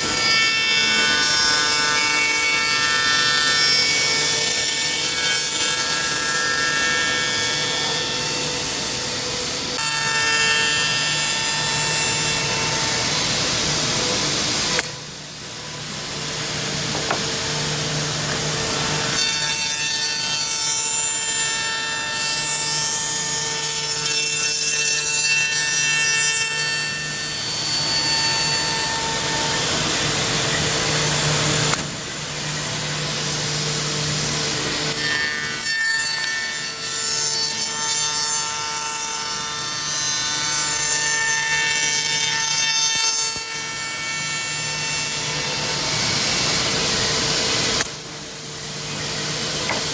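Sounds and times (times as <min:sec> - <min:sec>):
woodworking machine cutting wood: 0:00.0 - 0:15.0, 0:15.6 - 0:48.0.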